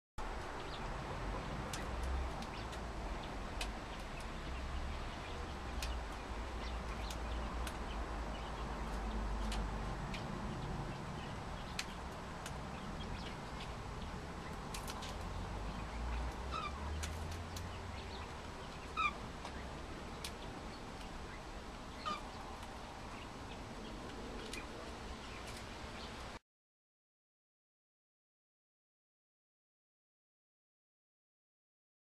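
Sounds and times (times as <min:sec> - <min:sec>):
faint clicks: 0:03.5 - 0:04.3
cockatiels chirping: 0:15.9 - 0:23.3.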